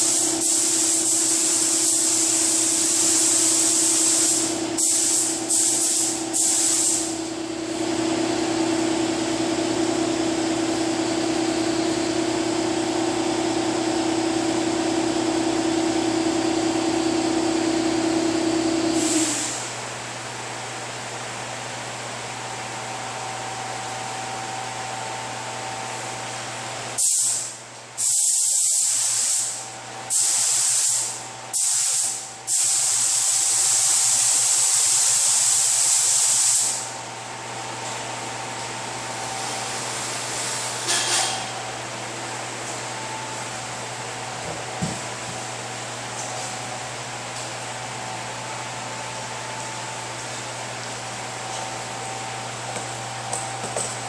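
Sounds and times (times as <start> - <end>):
air spray gun hissing: 0.0 - 7.3, 18.9 - 19.7, 27.0 - 37.0
steady hum: 0.0 - 20.8.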